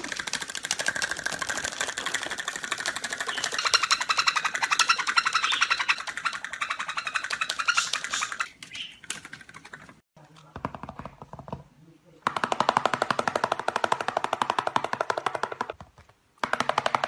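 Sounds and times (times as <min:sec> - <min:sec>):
bird rattling chatter: 0:00.0 - 0:10.0.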